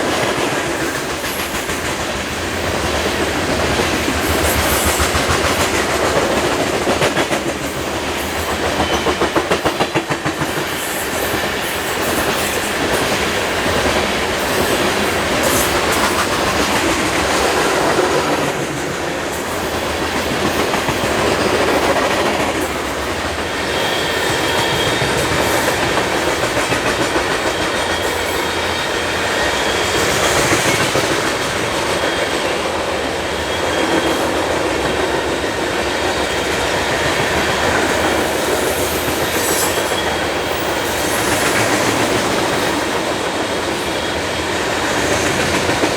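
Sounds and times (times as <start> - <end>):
freight train wheels clicking on rails: 0.0 - 45.9
faint high wheel squeal: 23.6 - 25.6, 33.2 - 34.6, 38.4 - 41.6.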